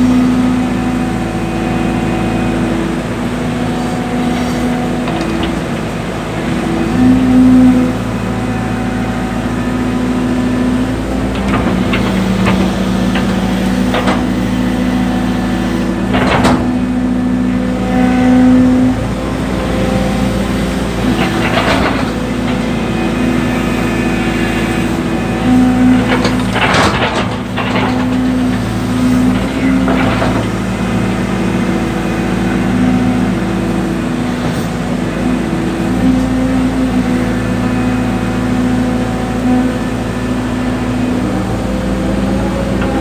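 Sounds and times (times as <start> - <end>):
diesel excavator engine running: 0.0 - 43.0
clattering knocks: 11.2 - 14.5, 16.0 - 16.9.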